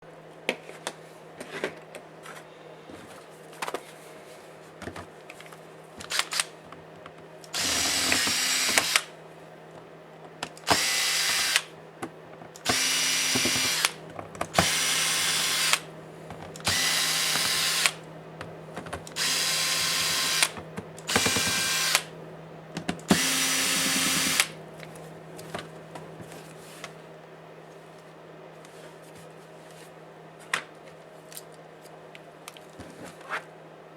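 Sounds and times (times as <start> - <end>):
power screwdriver bursts: 6.1 - 6.5, 7.5 - 9.1, 10.6 - 11.7, 12.6 - 15.9, 16.6 - 18.0, 19.1 - 22.1, 23.1 - 24.6.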